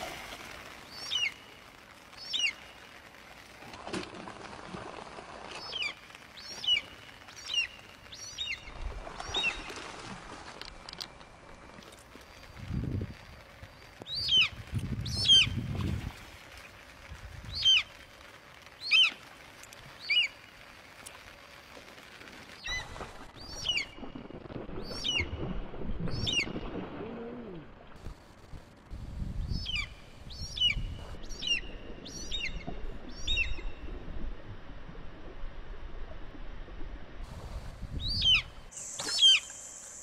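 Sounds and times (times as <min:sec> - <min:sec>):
fish splashing in water: 0:00.0 - 0:08.0
bird whistling calls: 0:38.1 - 0:40.0.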